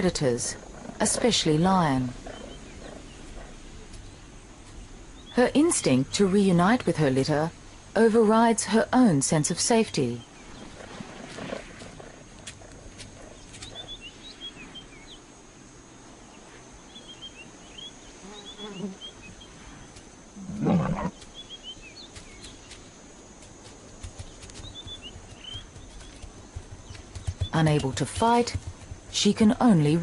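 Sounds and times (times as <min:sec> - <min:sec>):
small birds chirping faintly: 0:00.0 - 0:30.0
big cat growling: 0:20.4 - 0:21.2.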